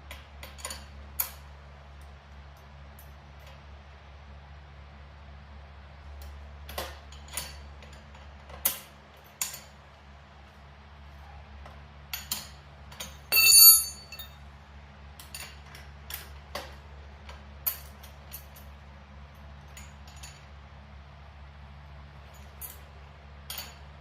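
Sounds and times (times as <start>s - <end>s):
wrench and metal hardware clicking: 12.1s - 14.4s, 23.5s - 23.9s
ringing metallic clink: 13.2s - 14.4s.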